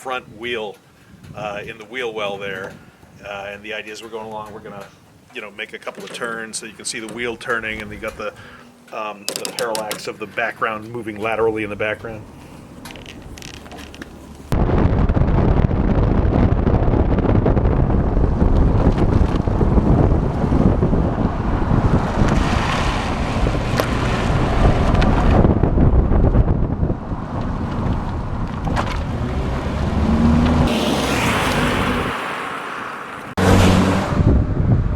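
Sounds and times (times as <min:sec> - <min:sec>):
wind buffeting microphone: 0:00.2 - 0:03.5, 0:14.5 - 0:32.2, 0:33.3 - 0:34.9
car road and engine noise: 0:10.2 - 0:14.6, 0:17.1 - 0:34.9.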